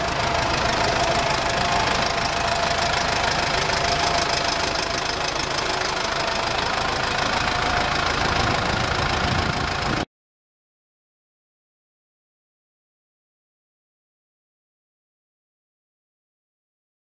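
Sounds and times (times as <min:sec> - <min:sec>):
tractor diesel engine running: 0:00.0 - 0:10.1.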